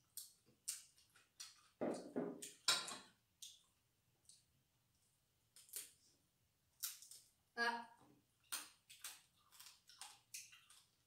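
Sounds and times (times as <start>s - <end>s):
wet chewing and lip smacks: 0.0s - 1.8s, 3.4s - 4.5s, 6.8s - 7.3s, 8.4s - 11.0s.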